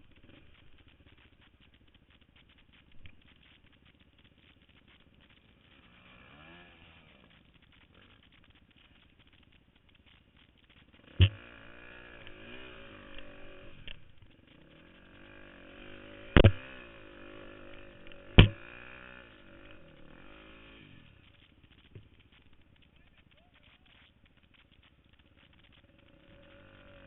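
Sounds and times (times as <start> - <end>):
dirt bike engine revving: 4.5 - 9.5, 10.7 - 23.7, 24.4 - 27.0
sharp loud thumps: 11.2 - 11.5, 16.4 - 16.8, 18.2 - 18.8.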